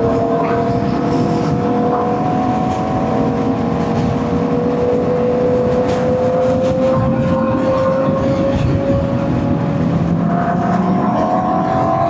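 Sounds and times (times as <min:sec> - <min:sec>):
road and wind rumble: 0:00.0 - 0:12.0.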